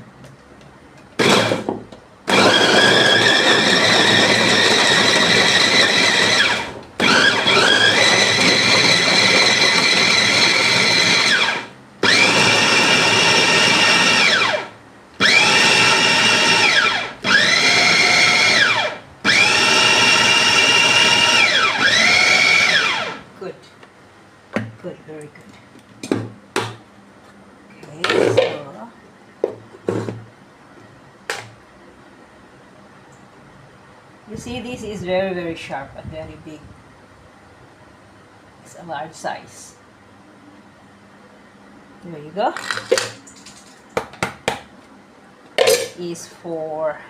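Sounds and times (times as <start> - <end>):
electric meat grinder motor whining: 1.2 - 1.6, 2.3 - 23.2.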